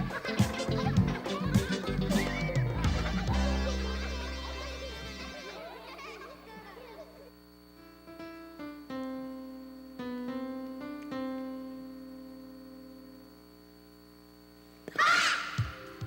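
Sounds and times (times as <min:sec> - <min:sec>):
electric piano music: 0:00.0 - 0:05.9, 0:07.8 - 0:13.2.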